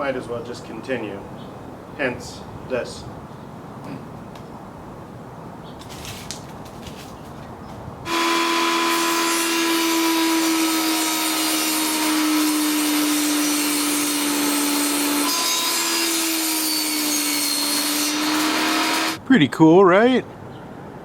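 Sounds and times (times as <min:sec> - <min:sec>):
power tool motor humming: 0:08.1 - 0:19.2.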